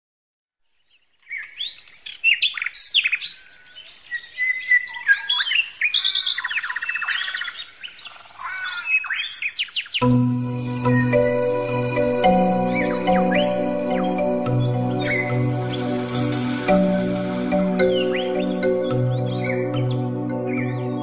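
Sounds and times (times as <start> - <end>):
birds chirping and trilling: 0.7 - 21.0
music: 10.0 - 21.0.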